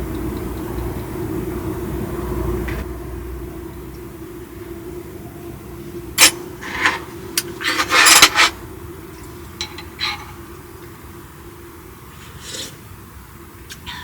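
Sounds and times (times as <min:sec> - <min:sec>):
steady low hum: 0:00.0 - 0:14.0
cookware and utensils clattering: 0:06.2 - 0:08.6, 0:09.5 - 0:10.5.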